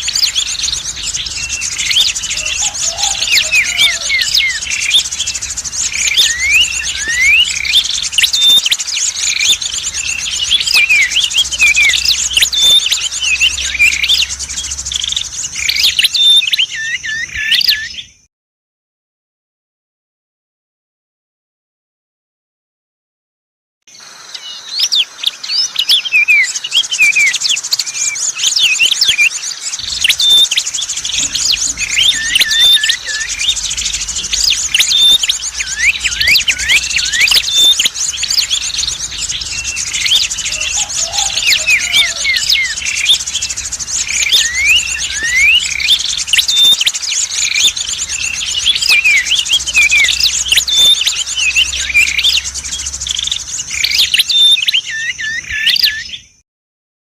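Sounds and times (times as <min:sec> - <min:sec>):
continuous high fast trill: 0:00.0 - 0:16.9, 0:27.3 - 0:54.6
dense bird chirping: 0:00.0 - 0:18.3, 0:23.9 - 0:56.4.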